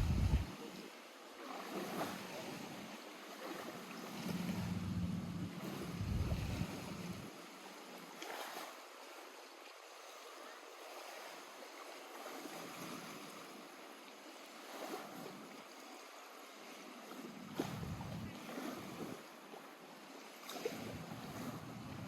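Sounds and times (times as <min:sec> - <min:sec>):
wind gust on microphone: 0:00.0 - 0:00.5, 0:04.3 - 0:07.3, 0:17.6 - 0:19.1
water lapping at shore: 0:00.0 - 0:22.0.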